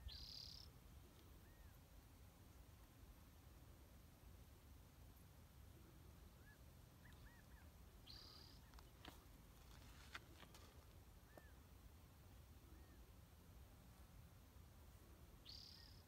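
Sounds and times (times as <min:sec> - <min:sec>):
faint bird chirps: 0:00.0 - 0:01.8, 0:05.9 - 0:09.2, 0:11.2 - 0:11.7, 0:12.6 - 0:13.2, 0:15.2 - 0:16.0.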